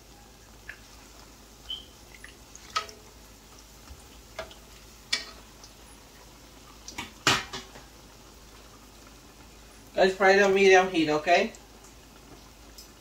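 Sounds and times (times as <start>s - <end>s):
dough frying in hot oil: 0.0s - 13.0s.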